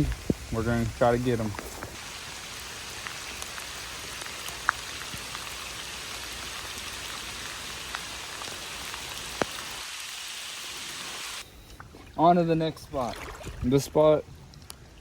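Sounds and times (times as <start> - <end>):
raindrops ticking: 0.0 - 9.6
steady rain hiss: 0.0 - 11.4.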